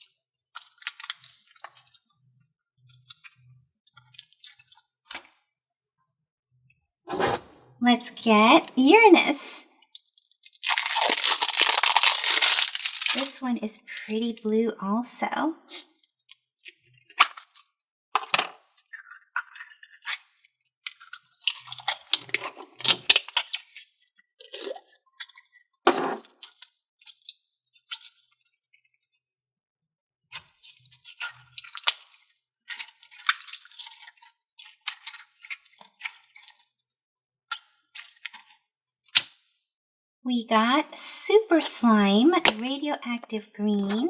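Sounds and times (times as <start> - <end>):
slime squishing in container: 10.1 - 13.5.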